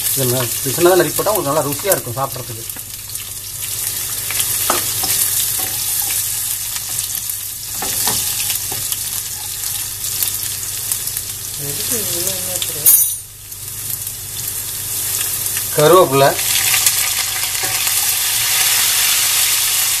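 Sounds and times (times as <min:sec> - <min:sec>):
garlic sizzling in hot oil: 0:00.0 - 0:20.0.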